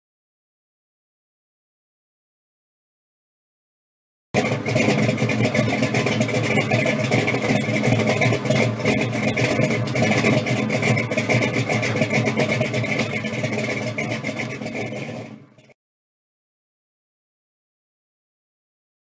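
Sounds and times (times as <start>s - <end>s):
car engine idling: 4.4s - 15.7s.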